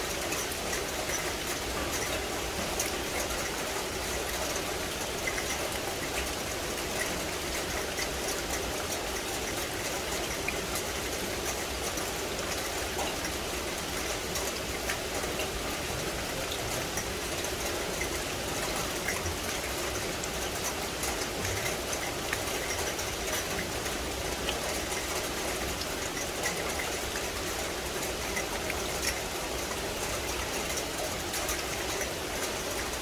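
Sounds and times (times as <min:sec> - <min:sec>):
rain on vegetation: 0:00.0 - 0:33.0
raindrops ticking: 0:00.0 - 0:33.0.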